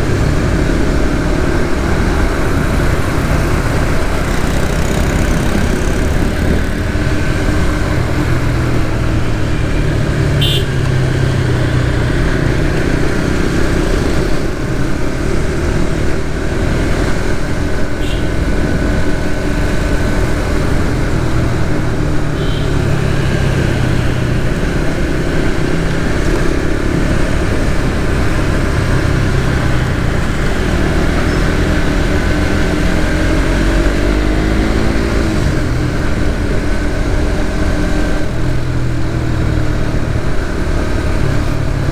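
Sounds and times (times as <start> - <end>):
wind rumble: 0.0 - 9.9
motorcycle engine running: 0.0 - 41.9
horn toots: 9.4 - 11.6, 17.9 - 18.6, 22.2 - 24.2.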